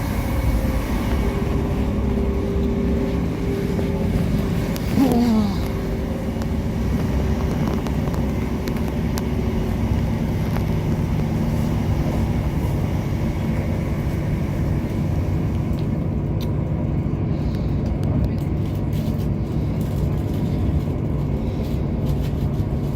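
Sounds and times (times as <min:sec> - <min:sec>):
train diesel engine running: 0:00.0 - 0:22.9.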